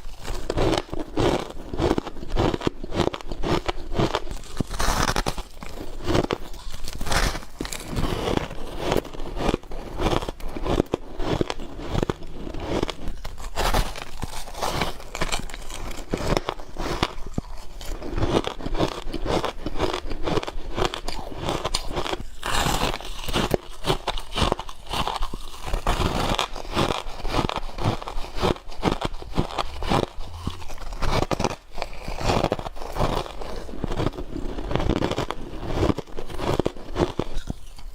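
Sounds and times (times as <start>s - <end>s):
ice being chewed: 0.0s - 37.9s.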